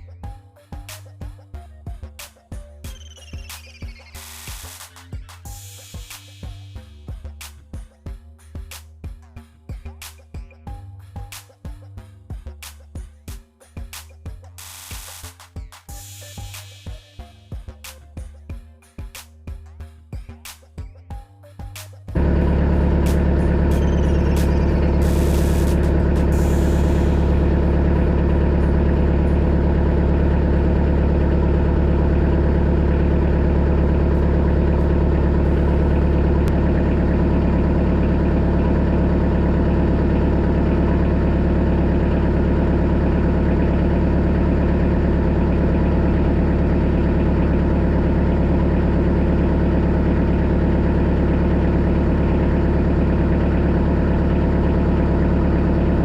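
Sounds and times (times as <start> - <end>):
tractor diesel engine droning: 22.2 - 56.0.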